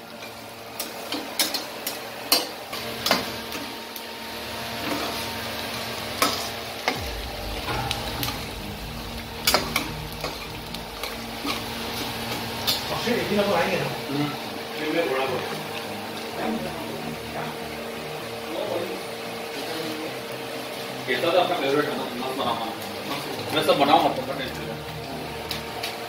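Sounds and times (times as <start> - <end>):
onion and spices sizzling in oil: 0.0 - 26.0
low rumble: 7.0 - 14.6.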